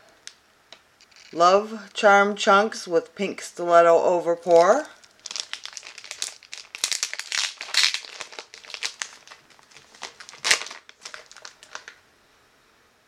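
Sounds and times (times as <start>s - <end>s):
packaging crinkling: 4.4s - 12.0s.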